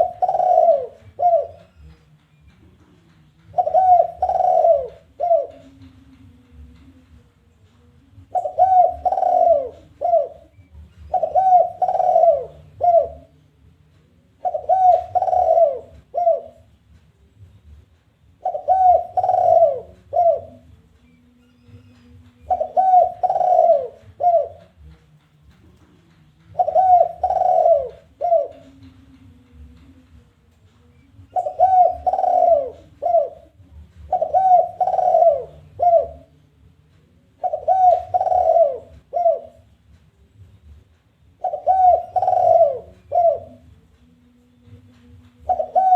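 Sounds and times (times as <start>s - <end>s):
dove cooing: 0.0s - 2.0s, 2.8s - 6.1s, 8.2s - 13.4s, 14.4s - 16.8s, 18.4s - 24.9s, 25.8s - 30.0s, 30.9s - 36.4s, 37.2s - 39.8s, 41.4s - 43.8s, 45.4s - 45.9s.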